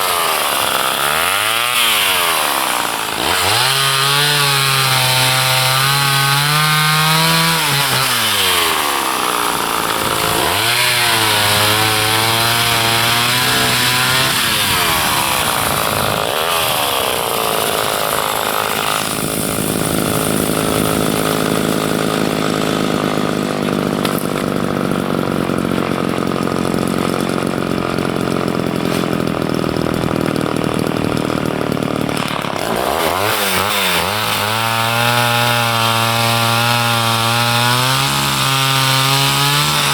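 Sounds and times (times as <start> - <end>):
chainsaw cutting through wood: 0.0 - 39.9
chainsaw engine revving: 0.0 - 39.9.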